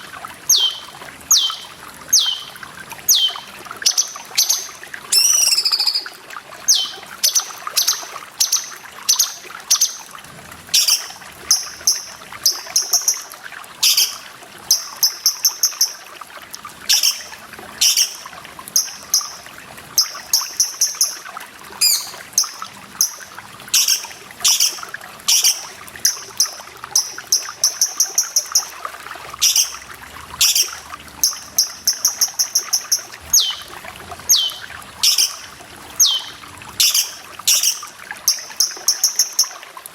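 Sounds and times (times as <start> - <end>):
trickling water: 0.0 - 39.9
bird calling and chattering: 0.5 - 10.0, 10.8 - 16.0, 16.9 - 19.4, 20.0 - 21.2, 21.8 - 28.8, 29.4 - 29.8, 30.4 - 39.6.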